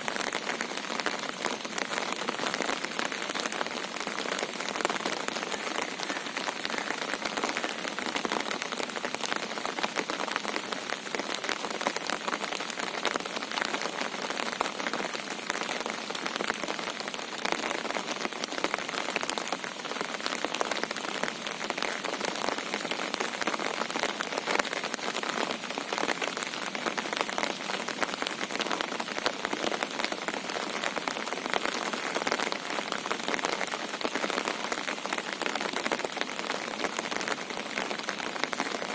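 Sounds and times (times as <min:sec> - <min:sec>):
heavy rain hissing: 0:00.0 - 0:16.1.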